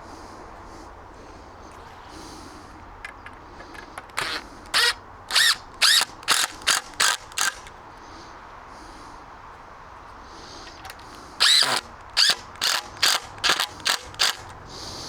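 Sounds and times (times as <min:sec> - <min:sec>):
cordless drill driving a screw: 0:04.0 - 0:07.7, 0:10.7 - 0:14.6.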